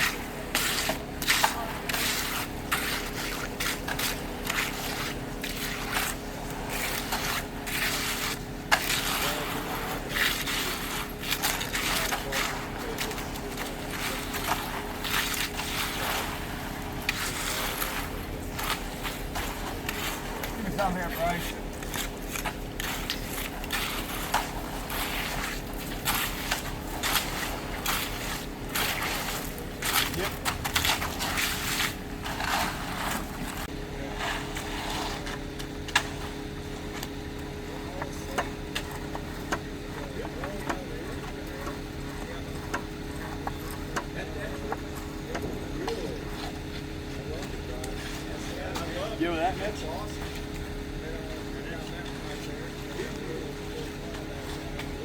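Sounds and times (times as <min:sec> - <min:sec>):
steady engine hum: 0:00.0 - 0:55.0
tools scraping wet concrete: 0:00.0 - 0:55.0.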